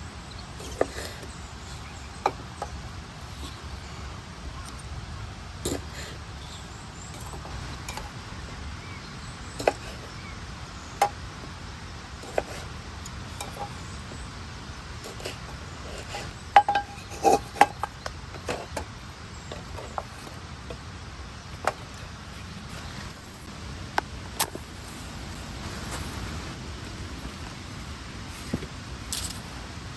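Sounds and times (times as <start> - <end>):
cookware and utensils clinking: 15.0 - 18.9.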